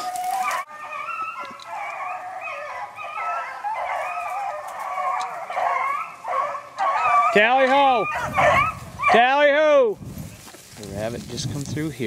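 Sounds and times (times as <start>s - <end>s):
dogs baying: 0.0s - 9.4s.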